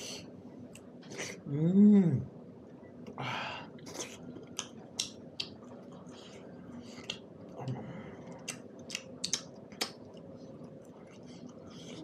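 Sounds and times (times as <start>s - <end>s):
chewing with wet lip smacks: 3.8s - 12.0s.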